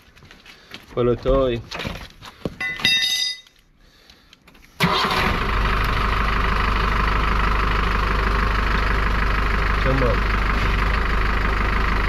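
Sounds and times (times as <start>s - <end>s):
short metallic ring: 2.6s - 3.6s
van engine starting and idling: 4.4s - 12.0s.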